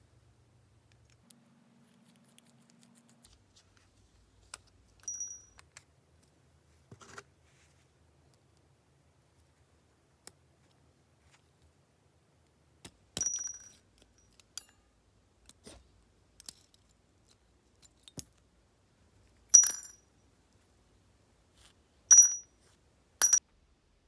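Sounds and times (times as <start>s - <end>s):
small metal parts clinking: 19.6s - 20.1s, 22.1s - 22.5s.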